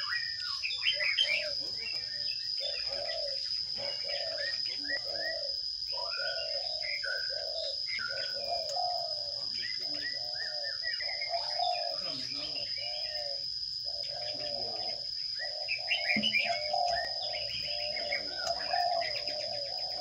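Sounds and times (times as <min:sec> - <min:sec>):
lower repeated bird calls: 0:00.0 - 0:20.0
sparrows chirping: 0:00.0 - 0:20.0
steady high-pitched whine: 0:00.0 - 0:20.0.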